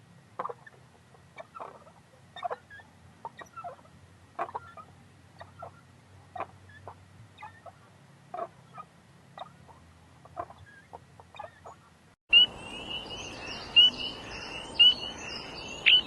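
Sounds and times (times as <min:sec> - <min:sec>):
background noise: 0:00.0 - 0:16.0
birds calling: 0:00.4 - 0:16.0
small animal squeaking: 0:01.4 - 0:05.8, 0:06.4 - 0:07.8, 0:08.4 - 0:11.9.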